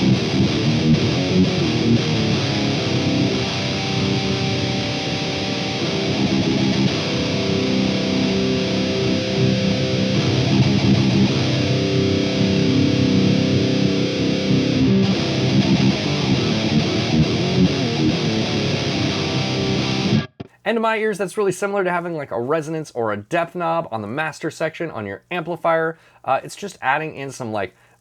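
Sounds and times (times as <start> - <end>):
distorted electric guitar riffing: 0.0 - 20.6.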